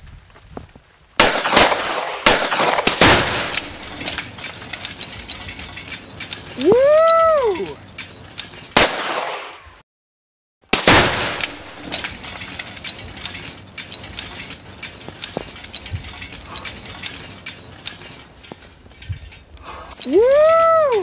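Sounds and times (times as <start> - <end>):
loud gunshot: 1.2 - 3.6, 8.8 - 9.6, 10.7 - 11.7
small ticks and clinks: 3.4 - 8.8, 11.4 - 21.0.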